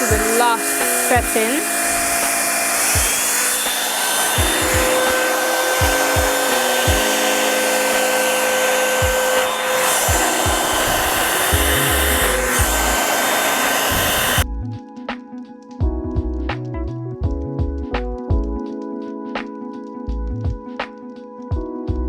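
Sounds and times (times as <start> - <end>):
music with bass and beat: 0.0 - 1.6, 4.4 - 5.0, 5.8 - 7.1, 10.1 - 13.0, 14.0 - 22.0
hair dryer blowing: 0.0 - 14.4.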